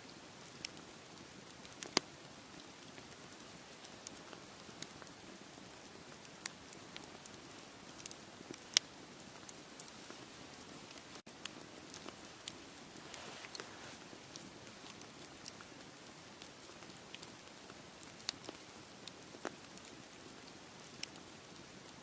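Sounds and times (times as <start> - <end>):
steady hiss: 0.0 - 22.0
campfire crackling and popping: 0.1 - 22.0.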